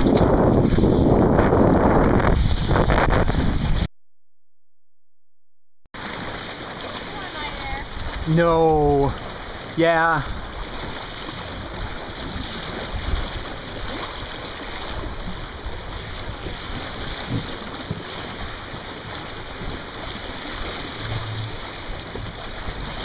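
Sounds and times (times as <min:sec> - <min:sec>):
water washing along hull: 0:00.0 - 0:03.9, 0:06.0 - 0:23.0
wind buffeting microphone: 0:00.0 - 0:03.9.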